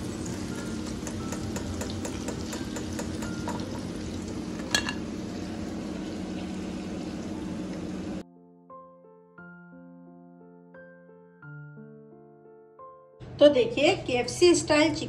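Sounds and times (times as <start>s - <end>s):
chicken deep-frying in hot oil: 0.0s - 8.2s.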